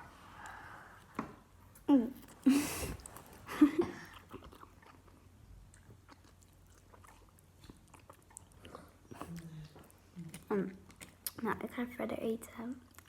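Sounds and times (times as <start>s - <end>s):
person chewing noodles: 2.2s - 11.4s.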